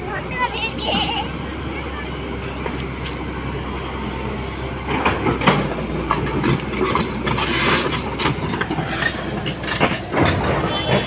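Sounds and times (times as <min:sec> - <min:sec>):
excavator diesel engine running: 0:00.0 - 0:11.0
knocks and crunches of demolition: 0:04.9 - 0:11.0.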